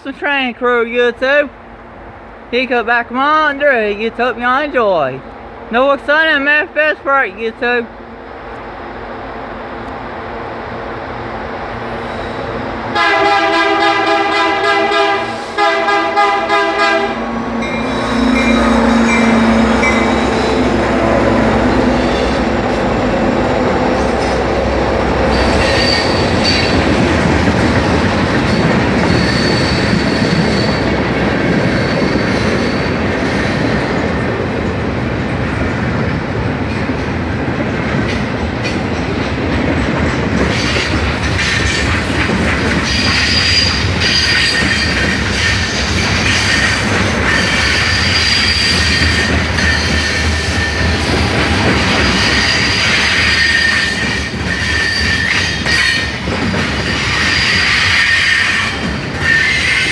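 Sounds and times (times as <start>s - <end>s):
freight train wheels rumbling on rail: 1.4s - 59.9s
high wheel squeals: 17.6s - 20.8s, 25.3s - 27.0s, 27.7s - 33.7s, 42.8s - 59.9s.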